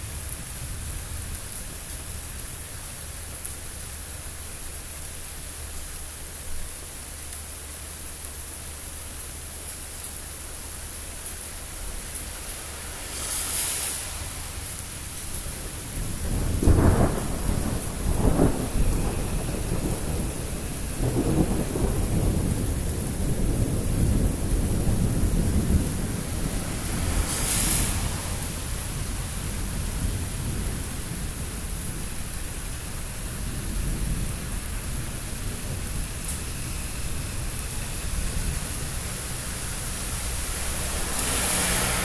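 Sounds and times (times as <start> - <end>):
rain hissing: 0.0 - 42.0
thunder rumbling: 15.4 - 42.0.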